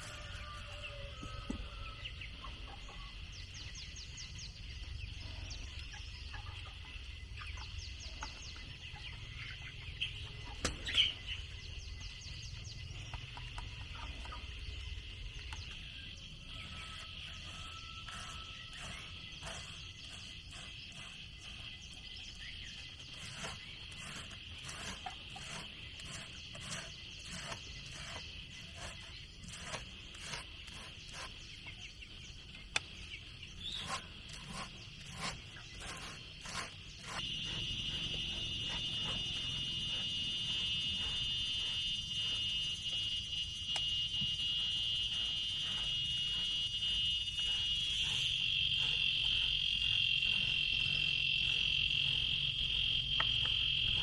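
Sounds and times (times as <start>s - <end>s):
high-pitched hum: 32.2s - 54.0s.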